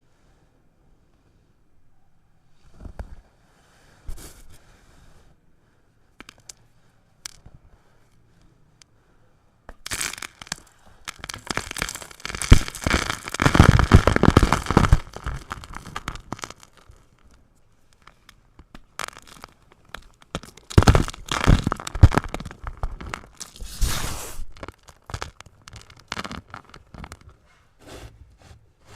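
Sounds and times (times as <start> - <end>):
chalk block crunching: 9.9 - 17.4, 18.0 - 27.4.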